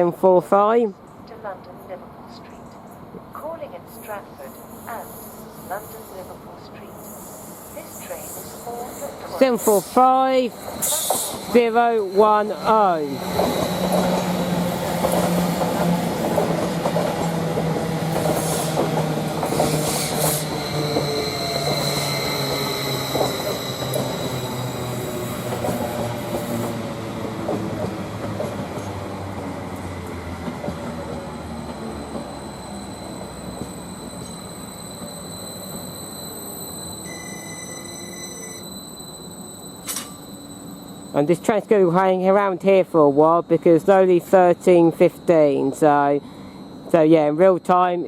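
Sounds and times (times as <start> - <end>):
train motor whine: 7.0 - 41.4
wheel squeal: 19.5 - 26.8, 31.6 - 41.2.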